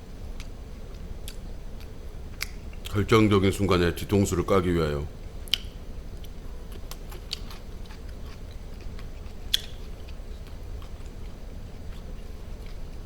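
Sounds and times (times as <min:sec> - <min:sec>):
steady low hum: 0:00.0 - 0:13.0
person chewing food: 0:00.3 - 0:02.9, 0:05.4 - 0:13.0.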